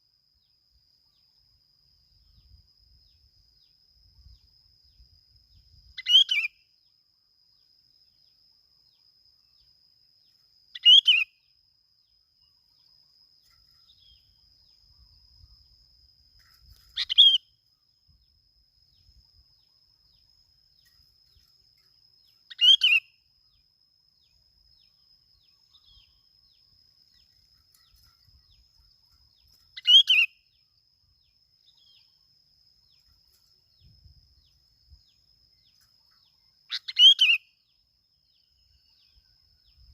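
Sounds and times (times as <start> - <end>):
faint high-pitched whine: 0.0 - 39.9
bulbul calling: 6.0 - 6.5, 16.8 - 17.5, 22.5 - 23.1, 29.8 - 30.4, 35.8 - 37.5.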